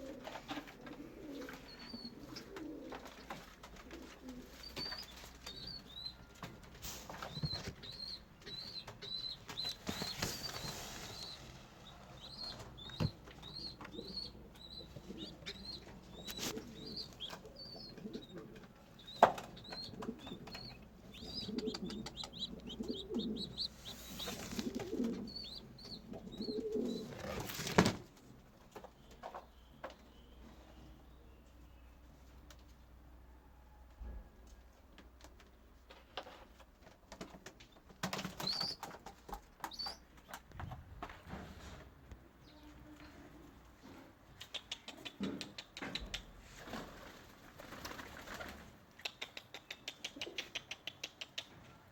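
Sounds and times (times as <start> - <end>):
birds chirping: 1.2 - 27.9, 38.0 - 40.8
lower pulsing bird calls: 7.1 - 27.1.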